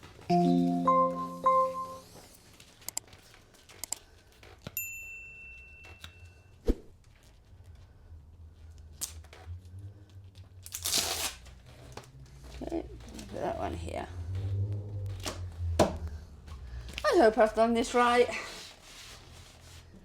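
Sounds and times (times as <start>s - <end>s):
held music notes: 0.3s - 2.3s
scattered clicks: 2.8s - 3.1s, 3.7s - 4.0s
loud tearing rip: 10.6s - 11.6s.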